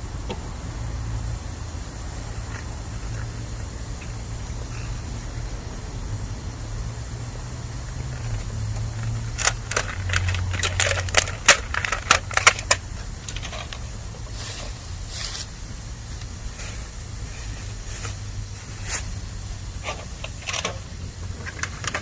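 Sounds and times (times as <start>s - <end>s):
hiss of moisture boiling: 0.0s - 22.0s
low steady fire rumble: 0.0s - 22.0s
bamboo crackling and popping in fire: 6.9s - 22.0s.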